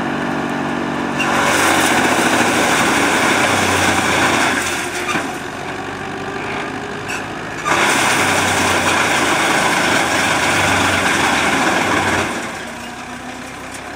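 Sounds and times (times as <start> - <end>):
wood chipper running: 0.0 - 13.9.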